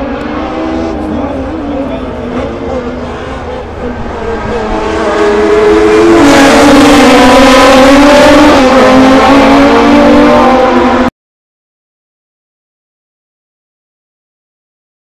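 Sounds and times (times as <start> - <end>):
racing car engines at high revs: 0.0 - 11.1.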